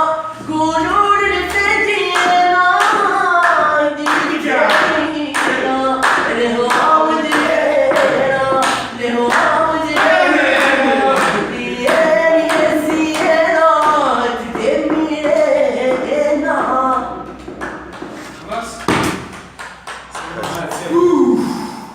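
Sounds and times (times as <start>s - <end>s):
person singing folk song: 0.0s - 17.3s
hand-clapping: 1.5s - 18.1s, 18.8s - 21.0s.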